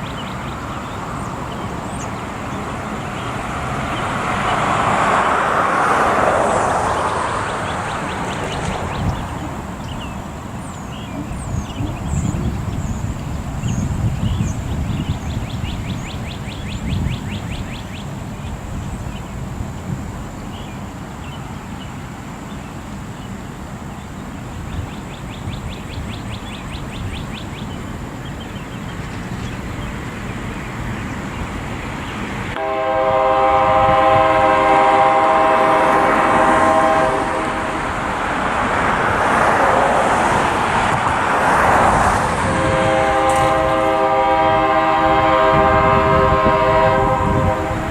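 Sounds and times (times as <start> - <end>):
wind noise: 0.0 - 20.6, 29.0 - 47.9
locomotive air horn: 32.5 - 38.0, 42.4 - 47.9.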